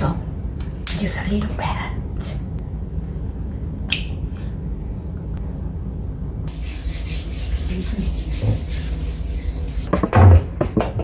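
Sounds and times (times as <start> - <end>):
steady low hum: 0.0 - 11.0
hands rubbing skin: 6.5 - 9.9.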